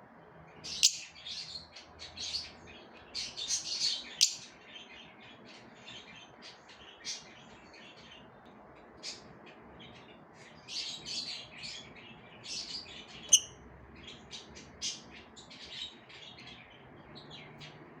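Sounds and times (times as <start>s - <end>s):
lovebirds chirping: 0.3s - 18.0s.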